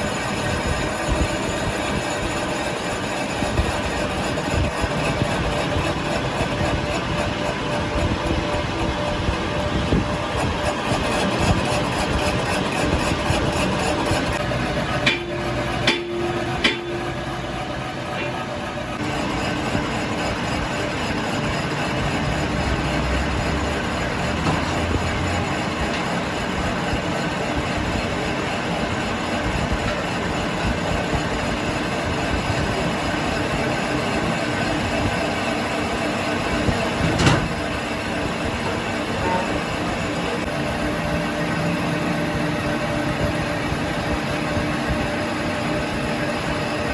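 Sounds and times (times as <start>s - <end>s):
steady hum: 0.0s - 24.6s
workshop machinery running: 0.0s - 46.9s
sharp metallic knocks: 14.9s - 17.6s
sharp metal clank: 15.1s - 17.2s.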